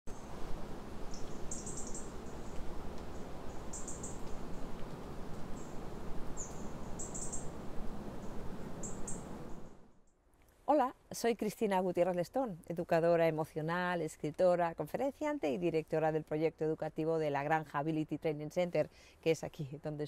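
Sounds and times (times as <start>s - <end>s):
outdoor background hiss: 0.1s - 20.0s
small birds chirping: 1.0s - 7.6s, 8.2s - 9.8s.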